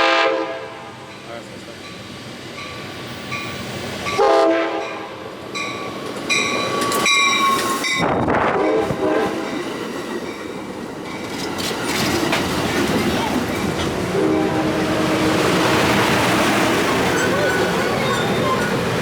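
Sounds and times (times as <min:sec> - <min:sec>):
train horn blasts: 0:00.0 - 0:01.0, 0:04.1 - 0:05.2, 0:08.4 - 0:09.6, 0:14.1 - 0:16.2
train rumble and wheel clatter: 0:00.0 - 0:19.0.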